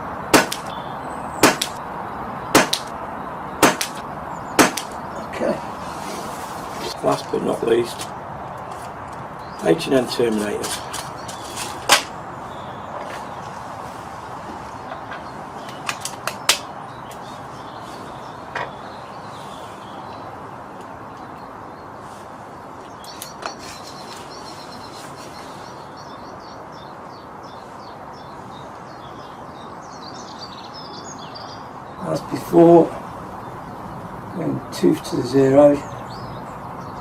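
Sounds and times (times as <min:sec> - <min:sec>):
birds chirping: 0:00.0 - 0:37.0
steady background hiss: 0:00.0 - 0:37.0
sharp air rifle shot: 0:00.3 - 0:00.8, 0:01.4 - 0:01.8, 0:02.5 - 0:02.9, 0:03.6 - 0:04.0, 0:04.6 - 0:05.0
air rifle action clicks: 0:00.4 - 0:00.8, 0:02.6 - 0:02.9, 0:15.7 - 0:16.7.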